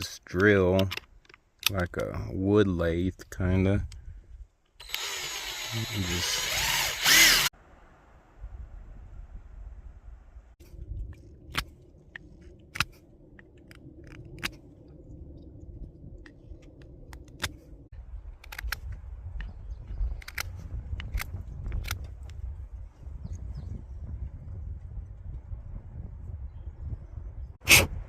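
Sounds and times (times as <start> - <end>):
low rumble: 7.1 - 28.0.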